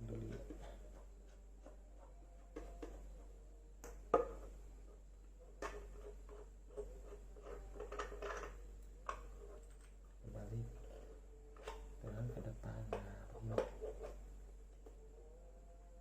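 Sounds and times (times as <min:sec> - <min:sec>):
clicks and knocks of parts handled: 0:07.8 - 0:10.1.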